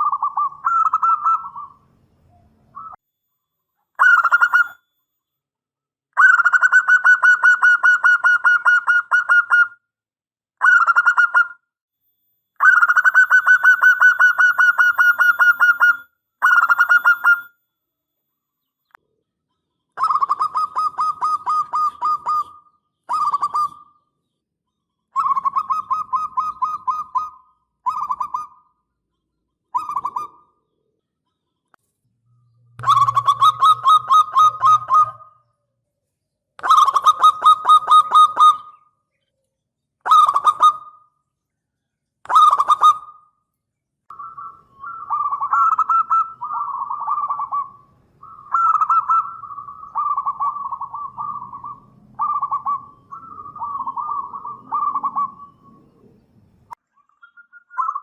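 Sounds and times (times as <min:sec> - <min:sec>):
dove cooing: 0:00.0 - 0:03.0, 0:20.0 - 0:24.0, 0:25.2 - 0:28.7, 0:29.8 - 0:30.6, 0:32.8 - 0:35.4, 0:36.6 - 0:38.8, 0:40.1 - 0:40.9, 0:42.3 - 0:43.2, 0:44.1 - 0:56.2.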